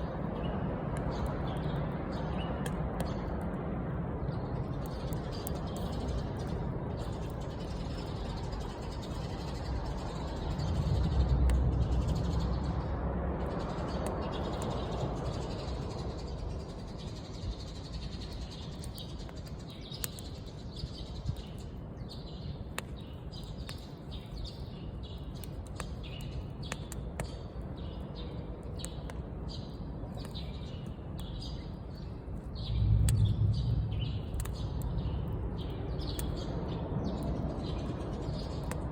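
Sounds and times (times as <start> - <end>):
wood fire crackling: 0.0 - 38.9
low rumble: 9.6 - 14.3, 32.4 - 37.6.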